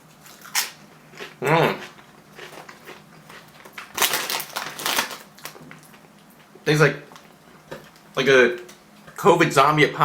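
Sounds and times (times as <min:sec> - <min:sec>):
chips crunching: 0:00.2 - 0:06.1.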